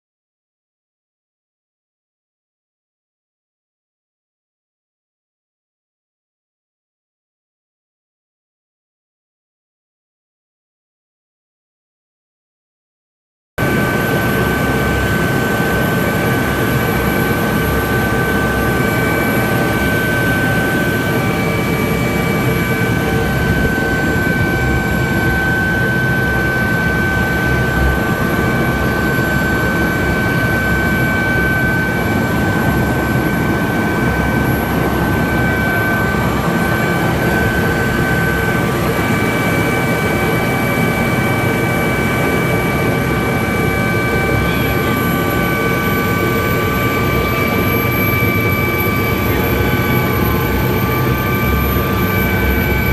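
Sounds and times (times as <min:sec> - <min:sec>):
helicopter engine and rotor: 0:13.6 - 0:52.9
turbine whine: 0:13.6 - 0:52.9.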